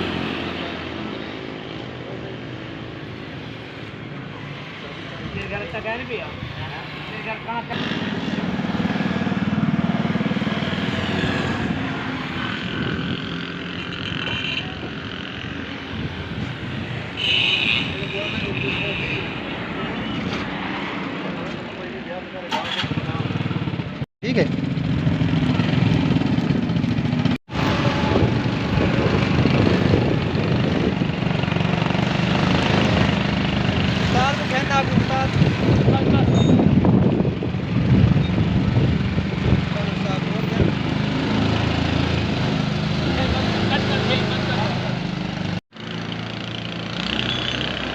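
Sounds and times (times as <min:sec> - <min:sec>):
motorcycle engine running: 0:22.6 - 0:33.9.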